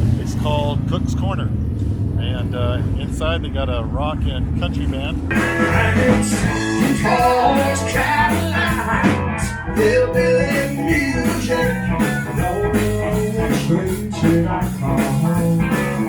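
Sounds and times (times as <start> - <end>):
electric guitar: 5.3 - 16.0
steady drum beat: 5.3 - 16.0
person singing: 5.4 - 16.0.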